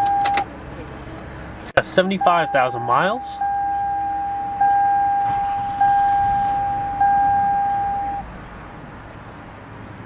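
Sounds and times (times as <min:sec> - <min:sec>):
dashboard warning chime: 0:00.0 - 0:00.5, 0:02.2 - 0:08.2
idling engine hum: 0:00.0 - 0:10.0.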